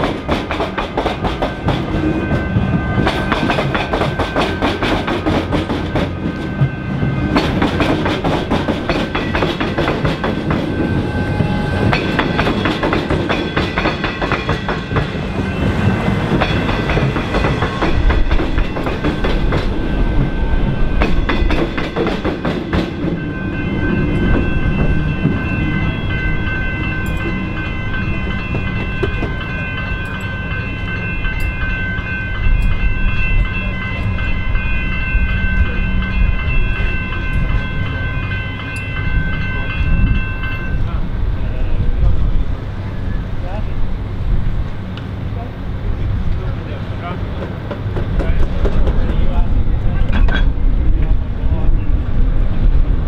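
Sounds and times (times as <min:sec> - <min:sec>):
train wheels clattering over crossing: 0:00.0 - 0:42.7, 0:45.9 - 0:53.0
level crossing bells ringing: 0:00.8 - 0:41.8.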